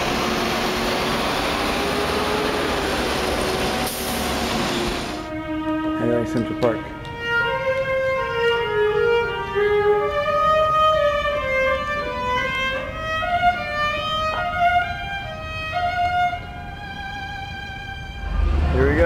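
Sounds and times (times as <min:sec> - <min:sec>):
solo violin slow melody: 0:05.1 - 0:18.5.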